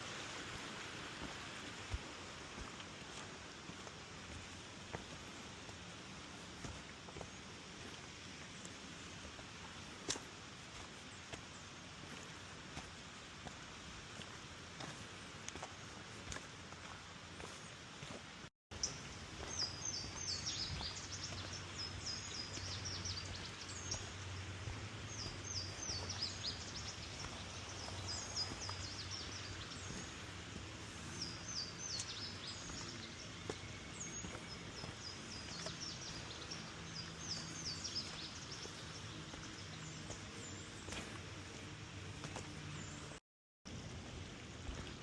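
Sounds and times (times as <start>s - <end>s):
birds chirping: 14.2s - 43.2s.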